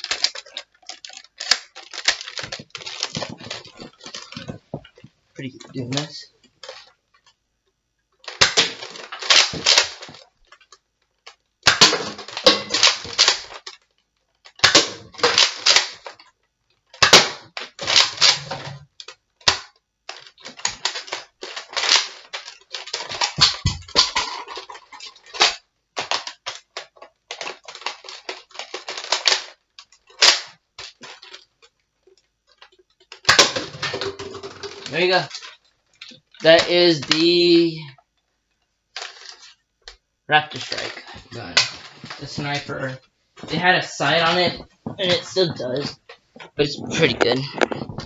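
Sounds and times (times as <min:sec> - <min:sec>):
sharp plastic clacks and snaps: 0:00.0 - 0:48.0
dart blaster cocked and fired: 0:17.0 - 0:18.4.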